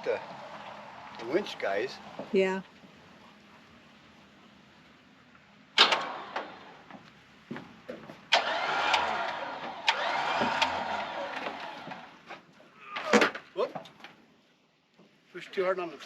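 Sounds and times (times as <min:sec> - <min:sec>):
electric winch motor running: 0:08.3 - 0:12.2.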